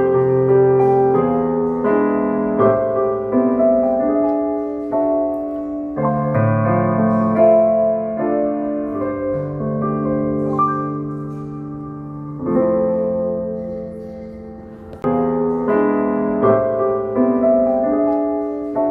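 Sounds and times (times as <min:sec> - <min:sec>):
piano playing slow chords: 0:00.0 - 0:18.9.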